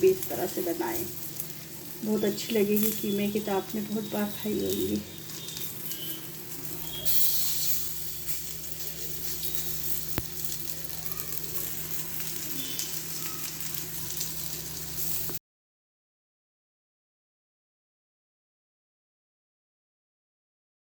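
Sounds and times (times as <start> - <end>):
food sizzling in oil: 0.0 - 15.4.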